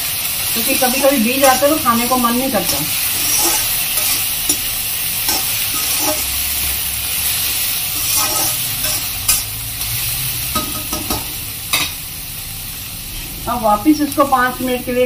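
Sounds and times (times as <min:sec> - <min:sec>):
vegetables sizzling in oil: 0:00.0 - 0:15.0
metal spatula stirring and scraping: 0:00.6 - 0:06.6, 0:07.2 - 0:10.0
spatula clinking on pan: 0:02.7 - 0:04.7, 0:05.3 - 0:06.3, 0:08.0 - 0:09.5, 0:10.5 - 0:12.0.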